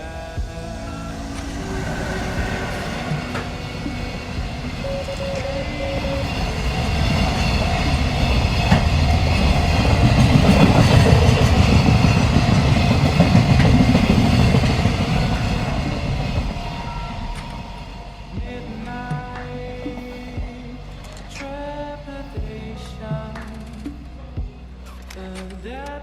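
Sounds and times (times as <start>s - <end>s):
train passing with rail clatter: 0.0s - 20.3s.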